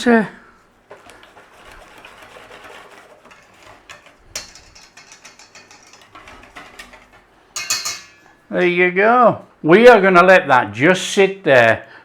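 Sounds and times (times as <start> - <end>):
whisk beating batter in a bowl: 0.8 - 8.0.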